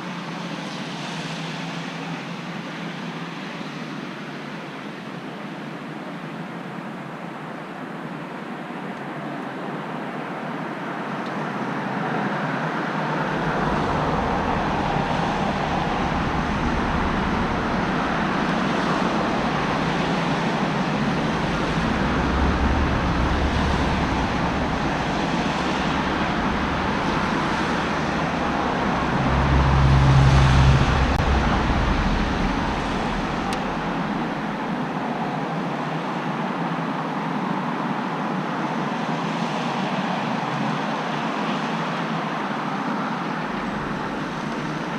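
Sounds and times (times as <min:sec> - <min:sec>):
tyres hissing on road: 0:10.9 - 0:36.2, 0:39.0 - 0:44.9
vehicle engine rumble passing: 0:11.8 - 0:35.4, 0:42.6 - 0:44.9.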